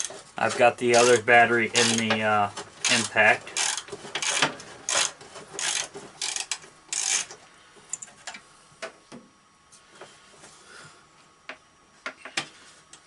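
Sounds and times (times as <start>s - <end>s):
light clicks and knocks of parts: 0.0s - 9.2s
wrench ratcheting clicks: 1.8s - 2.1s, 2.8s - 7.3s.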